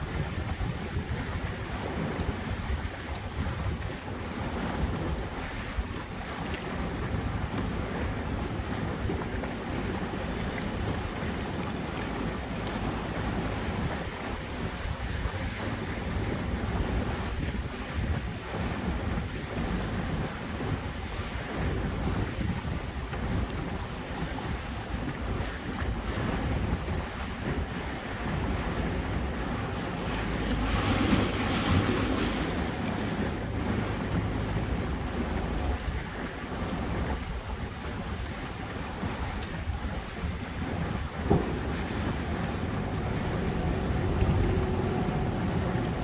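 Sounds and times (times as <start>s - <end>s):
wind buffeting microphone: 0.0s - 46.0s
water washing: 22.7s - 46.0s
low rumble: 41.0s - 46.0s.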